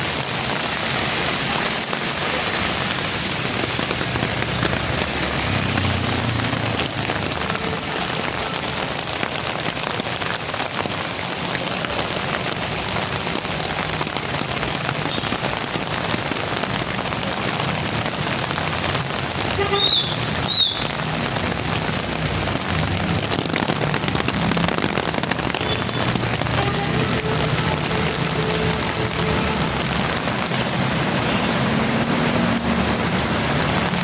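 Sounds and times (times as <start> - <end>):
heavy rain falling: 0.0 - 34.0.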